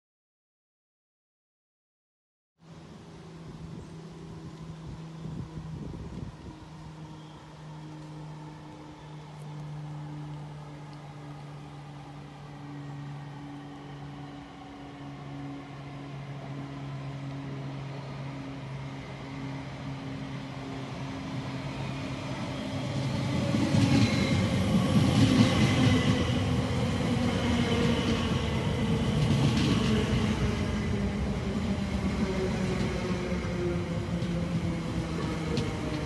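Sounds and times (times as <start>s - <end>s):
train hum: 2.6s - 36.0s.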